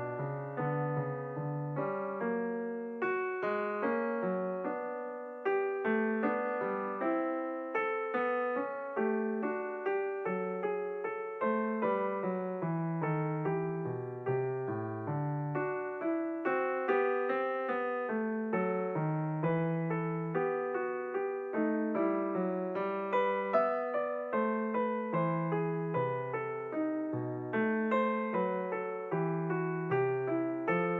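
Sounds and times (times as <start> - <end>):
calm piano melody: 0.0 - 30.9.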